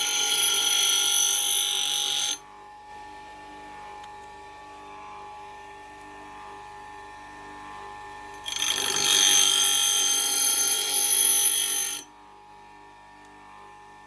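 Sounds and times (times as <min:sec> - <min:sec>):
axe blade grinding on grinder: 0:00.0 - 0:02.4, 0:08.4 - 0:12.1
grinder motor humming: 0:00.0 - 0:02.4, 0:08.4 - 0:12.0.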